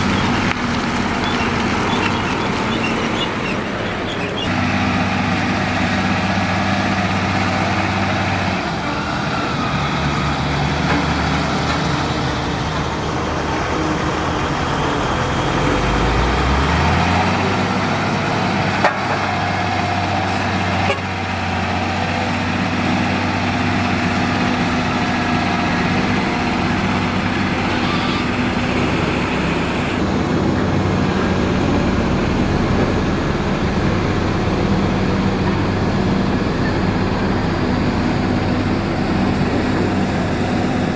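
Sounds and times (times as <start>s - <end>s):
engine revving: 0.0s - 40.9s
heavy machinery diesel engines: 0.0s - 40.9s.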